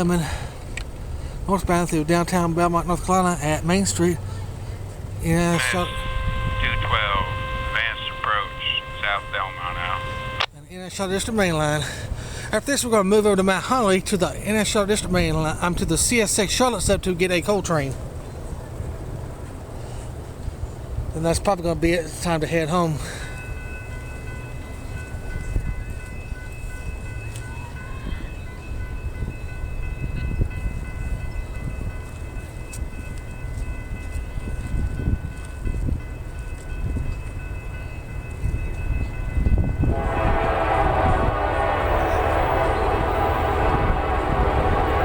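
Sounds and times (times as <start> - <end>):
diesel locomotive rumbling: 0.0 - 45.0
high-pitched ringing: 5.3 - 10.4, 37.7 - 45.0
locomotive horn blowing: 5.3 - 10.5, 39.8 - 45.0.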